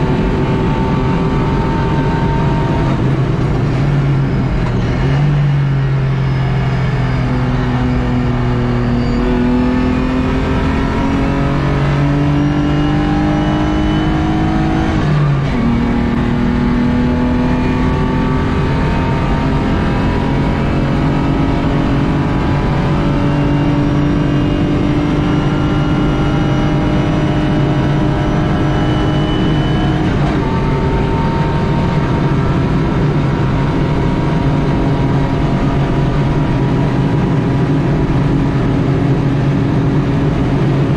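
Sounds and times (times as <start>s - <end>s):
race car engine accelerating: 0.0s - 40.9s
road and wind noise: 0.0s - 40.9s.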